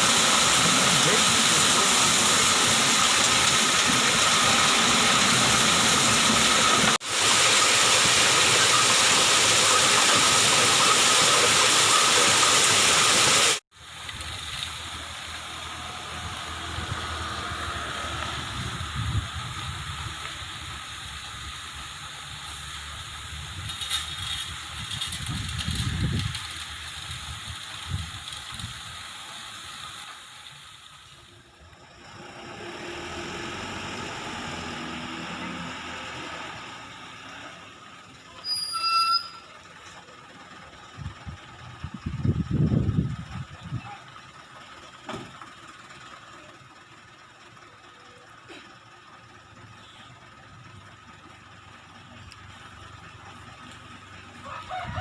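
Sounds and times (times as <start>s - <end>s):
water gushing: 0.0s - 31.6s.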